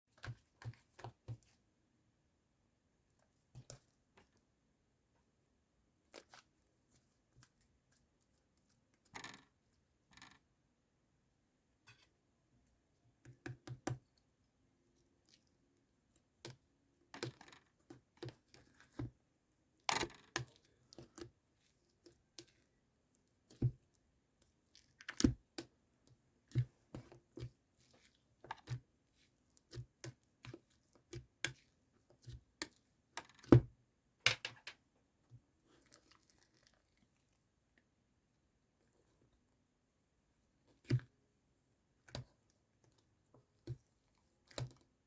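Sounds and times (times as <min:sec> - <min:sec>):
clicks and taps of small objects: 0:13.2 - 0:14.2, 0:16.4 - 0:19.2, 0:19.8 - 0:21.4, 0:24.7 - 0:28.9, 0:29.5 - 0:34.8, 0:42.0 - 0:44.9.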